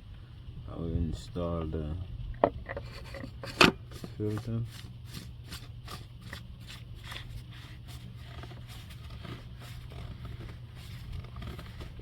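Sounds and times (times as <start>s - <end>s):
steady low hum: 0.0s - 12.0s
threads scraping and rubbing: 2.6s - 12.0s.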